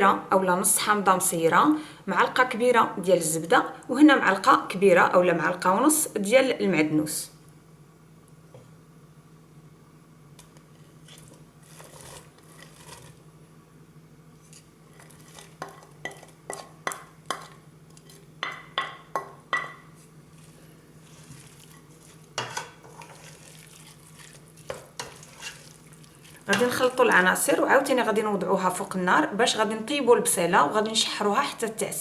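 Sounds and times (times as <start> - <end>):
spoon knocking against pot: 18.4 - 19.9.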